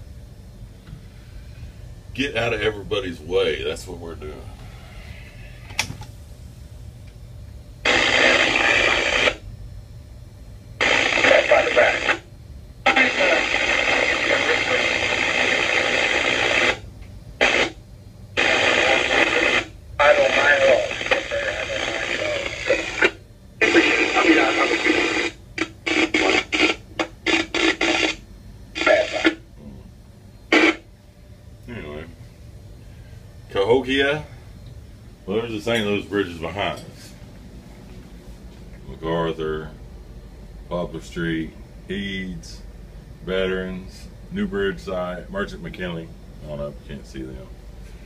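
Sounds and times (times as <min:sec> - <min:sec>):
crackly two-way radio transmission: 0:07.8 - 0:09.4, 0:10.8 - 0:29.6, 0:30.4 - 0:30.9.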